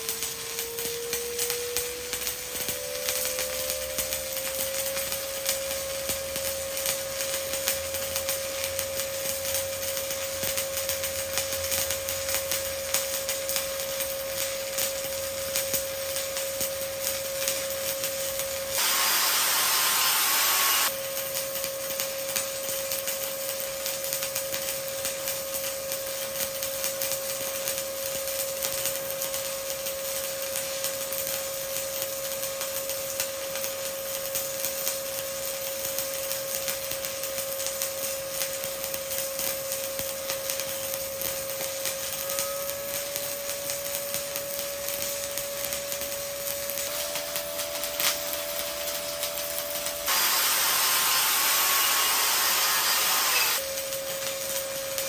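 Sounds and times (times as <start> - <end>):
welding arc crackling: 0.0 - 55.0
loud hiss: 18.7 - 21.0, 46.8 - 53.8
steady hum: 50.1 - 53.6.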